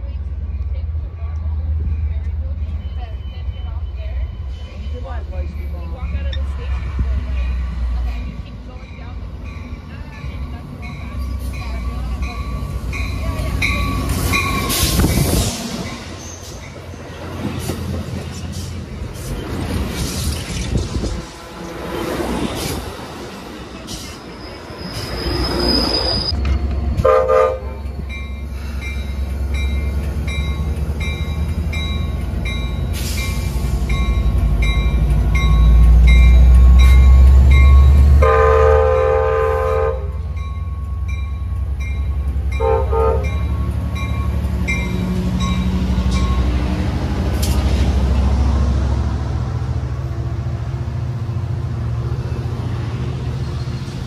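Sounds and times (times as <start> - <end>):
locomotive bell ringing: 0.0 - 17.1, 24.4 - 38.8, 39.9 - 46.8
deep locomotive engine rumble: 0.0 - 54.0
train horn blasts: 27.0 - 27.8, 38.1 - 40.2, 42.5 - 43.5.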